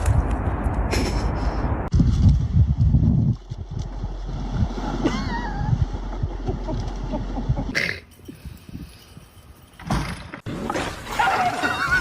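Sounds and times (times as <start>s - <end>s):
wind rumble on microphone: 0.0s - 9.4s.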